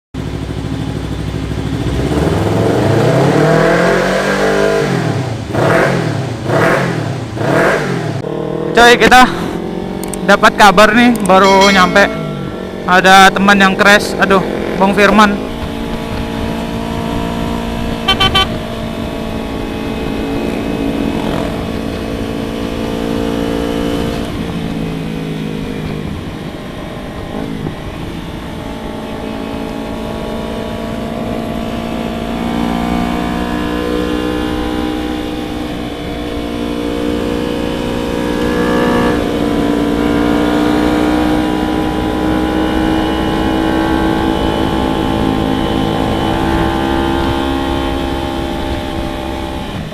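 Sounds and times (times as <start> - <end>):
motorcycle engine running: 0.2 - 49.9
wind rumble on microphone: 15.2 - 49.9.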